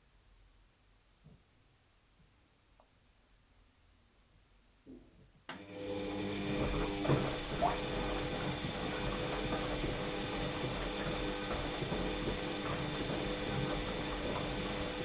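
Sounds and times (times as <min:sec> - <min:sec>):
washing machine drum turning: 0:06.1 - 0:15.0
knocks in washing machine: 0:06.5 - 0:14.5.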